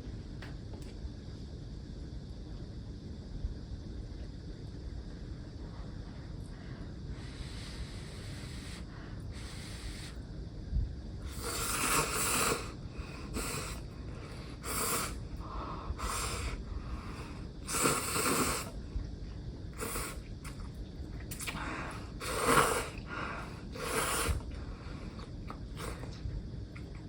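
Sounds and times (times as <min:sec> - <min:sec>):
person chewing and swallowing: 0:20.3 - 0:21.7.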